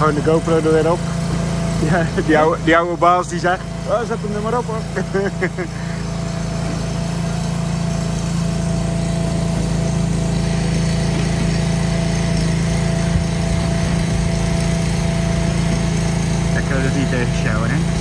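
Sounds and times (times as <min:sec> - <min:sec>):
lift motor droning with whine: 0:00.0 - 0:18.0.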